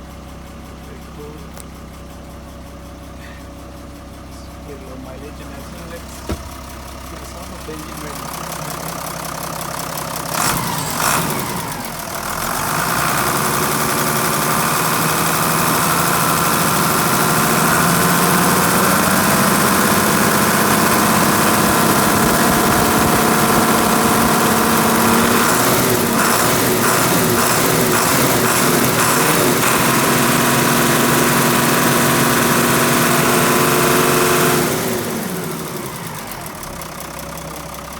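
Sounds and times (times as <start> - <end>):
diesel truck engine revving: 4.2 - 37.9
sharp knocks: 6.2 - 6.7.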